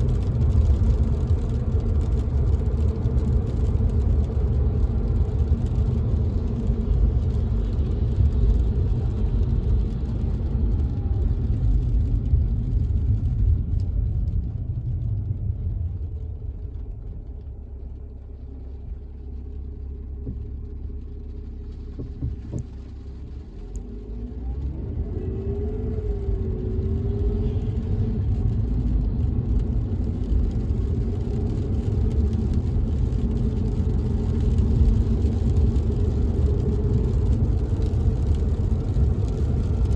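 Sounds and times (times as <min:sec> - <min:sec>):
car interior road and engine rumble: 0:00.0 - 0:39.9.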